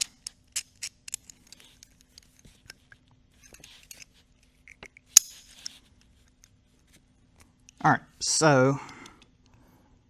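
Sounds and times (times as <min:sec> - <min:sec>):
small metal parts clinking: 0:03.4 - 0:05.8.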